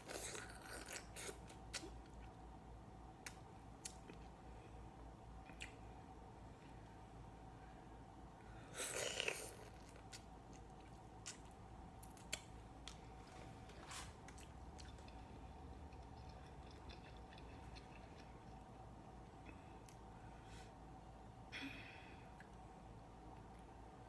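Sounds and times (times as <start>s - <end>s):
faint steady hum: 0.0s - 24.0s
chewing with clicks and smacks: 5.4s - 5.8s, 8.9s - 18.8s.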